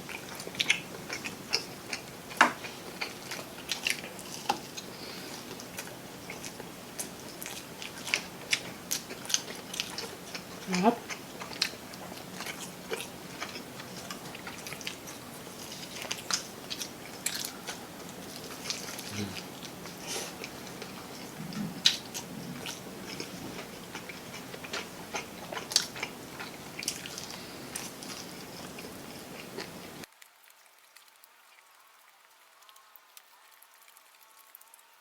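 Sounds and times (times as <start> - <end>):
crunchy chewing of fried chicken: 0.0 - 35.0.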